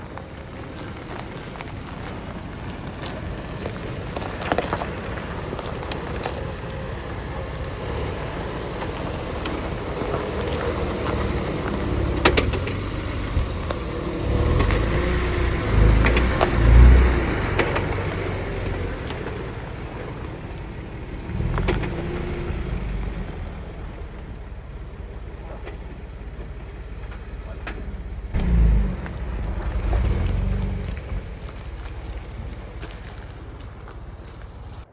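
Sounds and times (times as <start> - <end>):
truck engine running: 0.0 - 34.9
knocks and rattles: 0.6 - 20.6.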